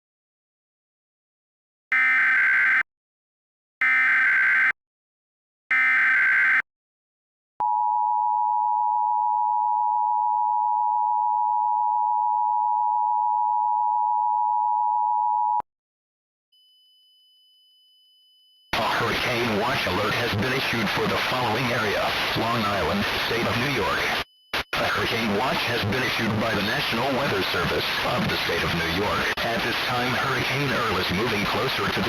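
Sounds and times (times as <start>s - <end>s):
digital data tone squawks: 18.8s - 29.4s.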